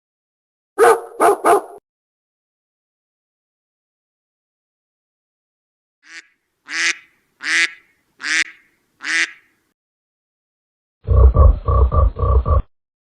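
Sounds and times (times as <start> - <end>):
duck quacking: 6.0 - 9.6
low pulsing animal call: 11.0 - 12.7.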